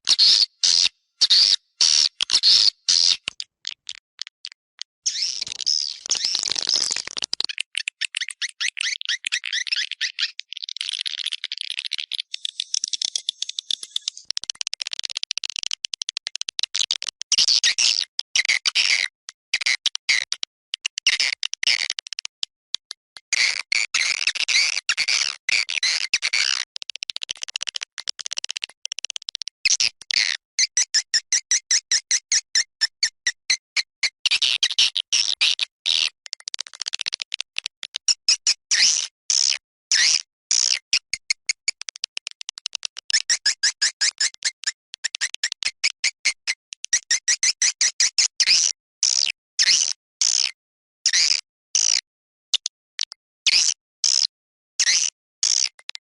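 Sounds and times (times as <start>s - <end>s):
high-pitched chirping clicks of swiftlets: 2.1s - 10.4s, 11.8s - 17.5s, 35.9s - 50.5s.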